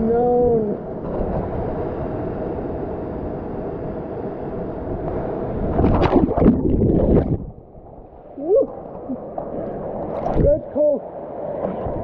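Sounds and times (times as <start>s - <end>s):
water rushing: 5.0s - 12.0s
water splashing and gurgling: 5.6s - 12.0s.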